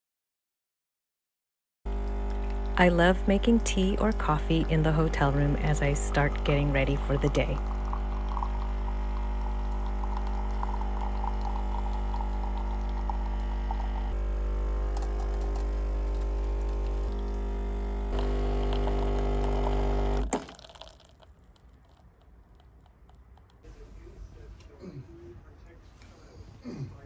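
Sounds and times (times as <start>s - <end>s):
coffee machine pump humming: 1.9s - 21.2s
coffee pouring into a cup: 4.2s - 23.6s.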